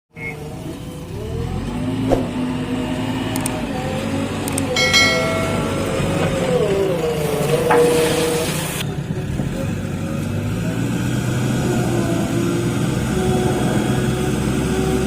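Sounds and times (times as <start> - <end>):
diesel engine under hydraulic load: 0.2 - 15.0
metallic clank with ringing: 4.8 - 6.7.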